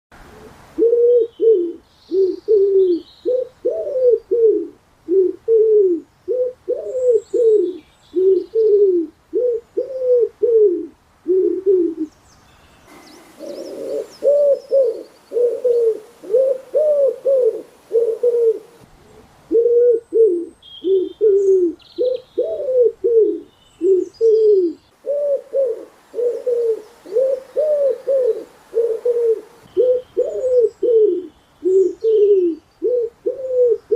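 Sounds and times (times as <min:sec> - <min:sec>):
doves cooing: 0:00.3 - 0:12.1, 0:12.9 - 0:33.9
small birds chirping: 0:12.0 - 0:16.2, 0:20.0 - 0:25.0, 0:26.2 - 0:33.9.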